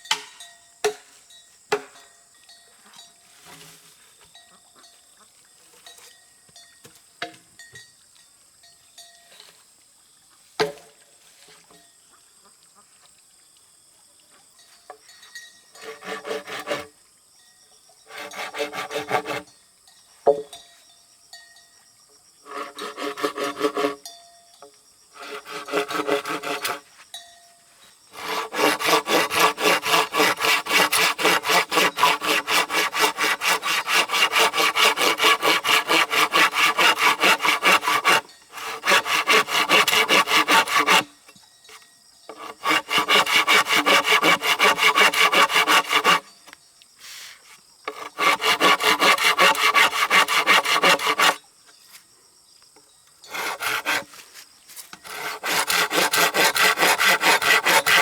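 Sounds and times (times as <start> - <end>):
hand saw cutting wood: 15.8 - 17.0, 18.1 - 19.5, 22.4 - 24.0, 25.2 - 26.9, 28.1 - 41.3, 42.3 - 46.4, 47.0 - 51.4, 53.3 - 58.0.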